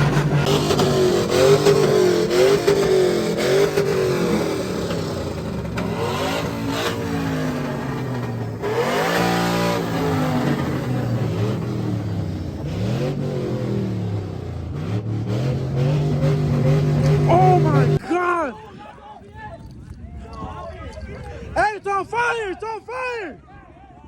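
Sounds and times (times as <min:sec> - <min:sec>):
vehicle engine revving hard: 0:00.0 - 0:18.0.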